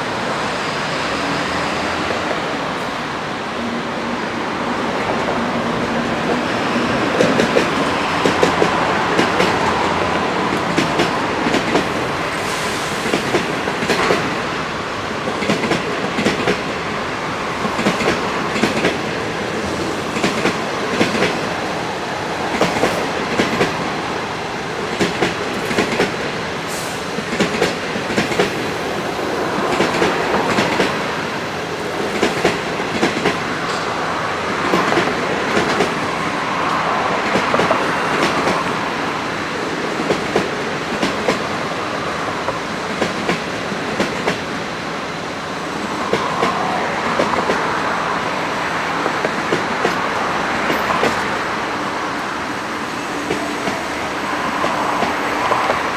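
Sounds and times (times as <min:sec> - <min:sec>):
rumble of wheels on rail: 0:00.0 - 0:55.9
train wheels clicking over rail joints: 0:24.7 - 0:34.0.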